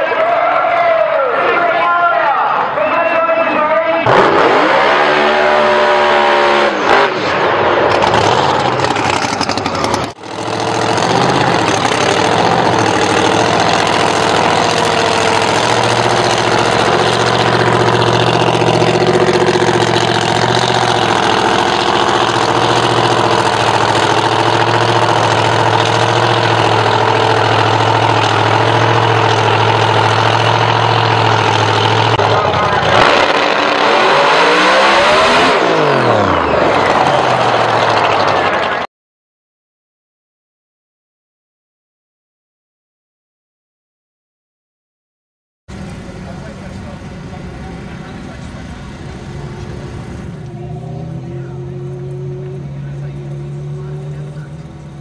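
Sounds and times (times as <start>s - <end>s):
drag car engine revving: 3.7s - 38.8s, 45.7s - 55.0s.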